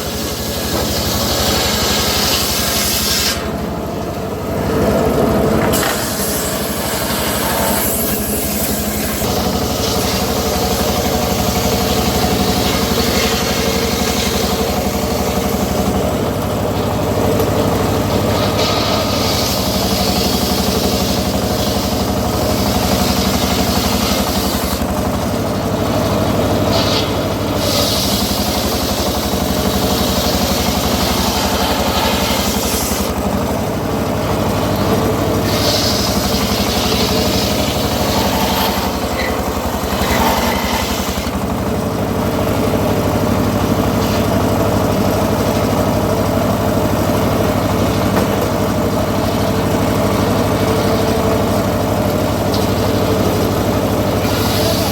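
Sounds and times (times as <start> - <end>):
sawmill engine running: 0.0 - 54.9.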